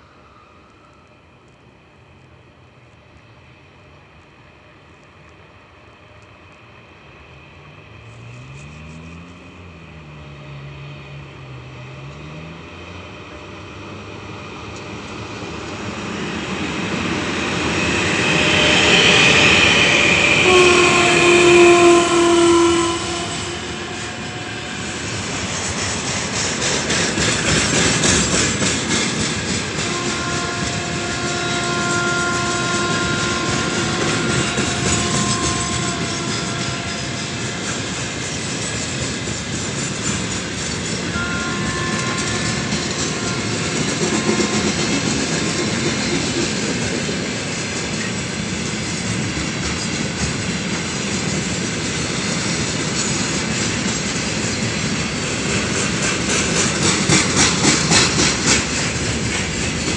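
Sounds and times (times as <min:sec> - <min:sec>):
electric locomotive passing with whine: 0:00.0 - 0:59.9
wheels clacking over rail joints: 0:18.6 - 0:59.9
train horn blast: 0:20.3 - 0:25.4, 0:29.8 - 0:37.8, 0:41.1 - 0:45.3.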